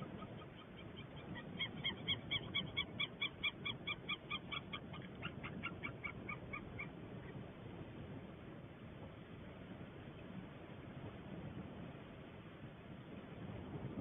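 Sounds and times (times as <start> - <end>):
eagles calling: 0.0 - 7.0.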